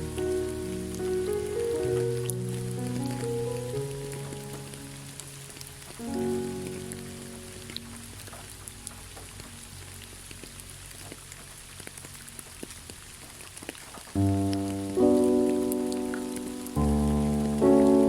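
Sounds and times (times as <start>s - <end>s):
music chord: 0.0s - 8.4s, 14.2s - 18.0s
rain falling: 0.0s - 18.0s.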